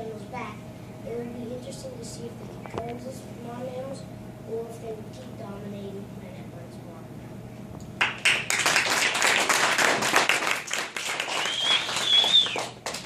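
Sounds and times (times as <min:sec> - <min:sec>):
children clapping: 0:08.0 - 0:13.0.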